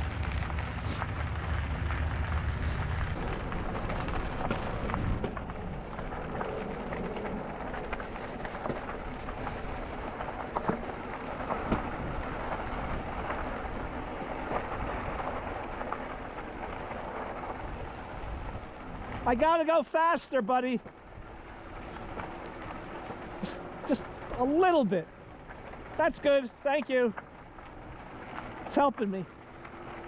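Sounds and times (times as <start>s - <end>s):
wind rumbling on microphone: 0.0s - 19.5s
bike tyres rolling on trail: 0.0s - 30.0s
small clicks and crackles: 0.0s - 30.0s.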